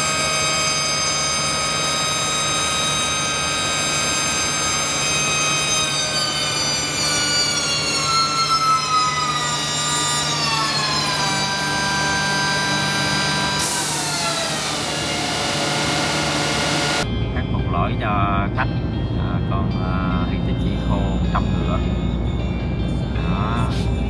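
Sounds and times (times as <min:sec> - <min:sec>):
machine motor whining: 0:00.0 - 0:17.0.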